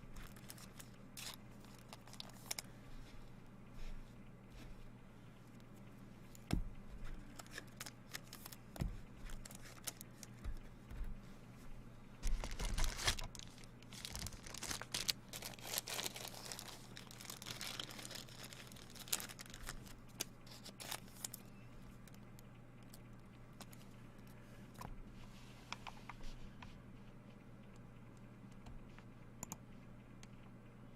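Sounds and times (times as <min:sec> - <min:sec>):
low electrical hum: 0:00.0 - 0:30.9
cards rustling: 0:00.1 - 0:02.7, 0:06.4 - 0:10.6, 0:12.2 - 0:21.5
wrappers tearing and crinkling: 0:00.1 - 0:02.7, 0:07.3 - 0:08.6, 0:09.3 - 0:10.0, 0:12.2 - 0:21.4.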